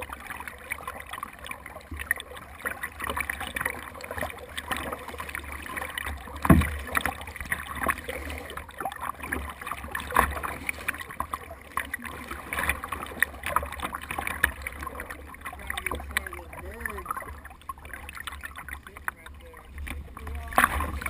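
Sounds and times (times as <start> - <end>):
water splashing against boat hull: 0.0 - 21.0
knocks on boat: 6.4 - 7.1.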